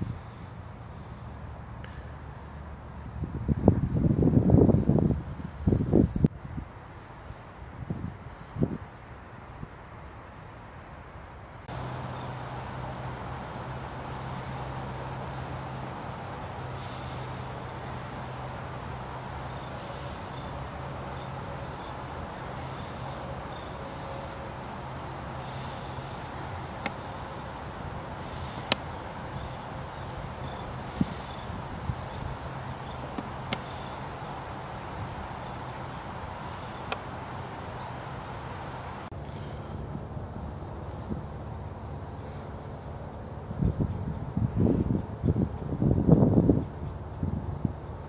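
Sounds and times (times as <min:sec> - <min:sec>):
steady low hum: 0:11.6 - 0:48.0
small bird chirping: 0:11.7 - 0:15.8, 0:16.6 - 0:37.2.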